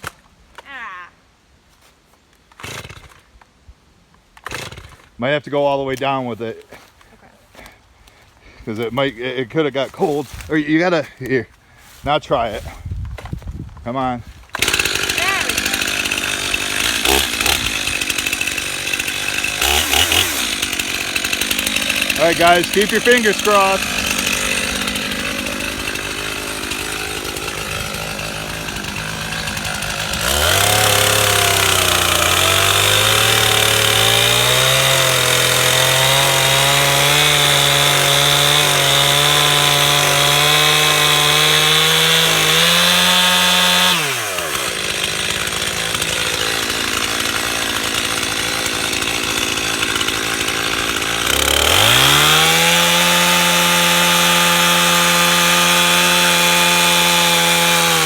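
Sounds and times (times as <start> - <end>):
chainsaw revving and cutting wood: 2.5 - 3.3, 4.4 - 5.2, 14.2 - 58.0.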